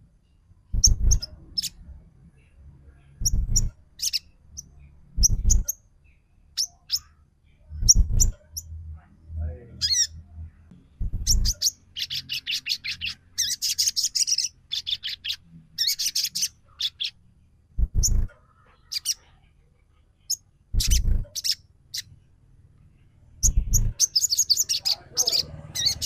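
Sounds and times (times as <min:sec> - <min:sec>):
low thuds: 0:00.7 - 0:01.3, 0:03.2 - 0:03.8, 0:05.2 - 0:05.7, 0:10.8 - 0:11.6, 0:17.8 - 0:18.3, 0:23.4 - 0:24.0
bird chirping rapidly: 0:00.7 - 0:01.8, 0:03.2 - 0:08.8, 0:09.8 - 0:10.2, 0:11.0 - 0:17.2, 0:17.8 - 0:19.2, 0:20.3 - 0:22.1, 0:23.4 - 0:26.0.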